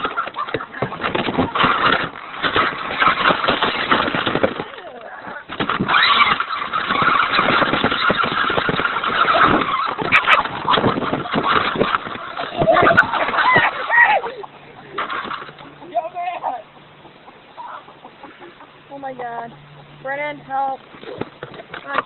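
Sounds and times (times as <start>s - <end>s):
rough crackling noise: 0.0s - 22.0s.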